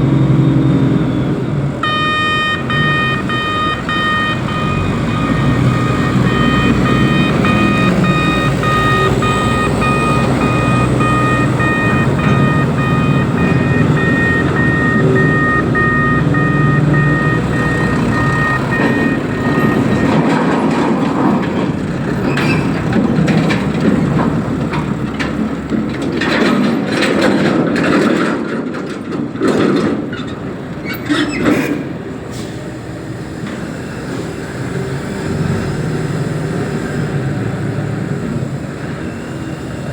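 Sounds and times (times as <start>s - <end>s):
diesel engine running under load: 0.0s - 39.9s
pulsing warning beeper: 1.8s - 20.4s
knocks and clatter: 5.4s - 31.9s.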